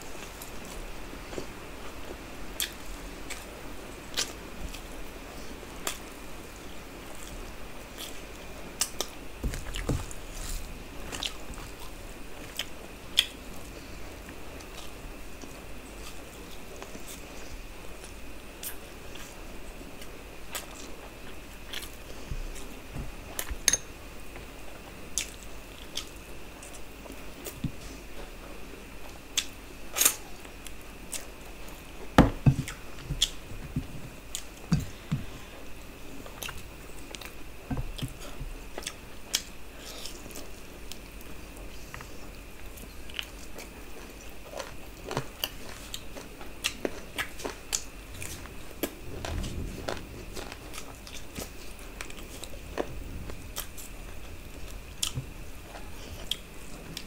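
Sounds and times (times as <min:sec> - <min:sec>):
chewing and mouth smacks: 0:25.2 - 0:26.8, 0:36.2 - 0:41.3
faint high whine: 0:46.8 - 0:57.0.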